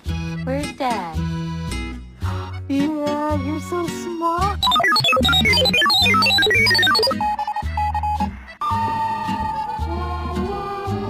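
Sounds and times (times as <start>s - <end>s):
wavering lead melody: 4.6s - 7.2s.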